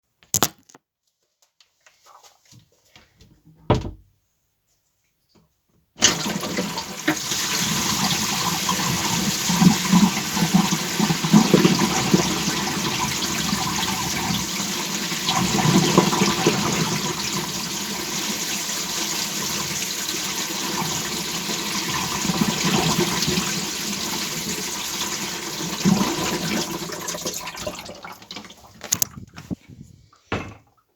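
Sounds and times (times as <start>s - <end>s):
water rushing through sink pipes: 6.0s - 29.1s.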